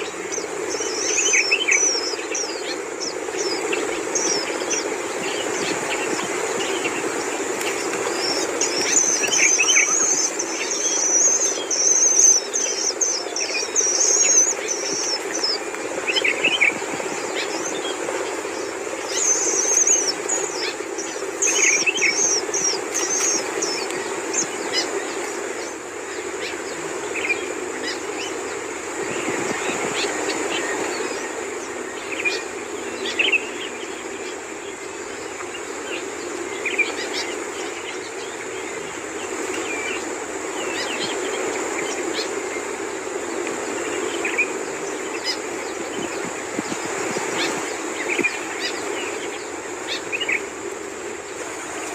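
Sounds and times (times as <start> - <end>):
birds chattering calls: 0.0 - 51.9.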